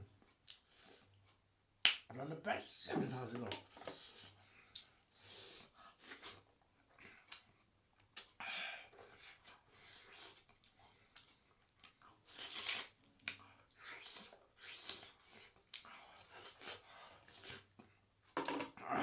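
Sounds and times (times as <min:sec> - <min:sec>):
breathing: 0:08.4 - 0:09.9
person chewing: 0:09.1 - 0:17.9.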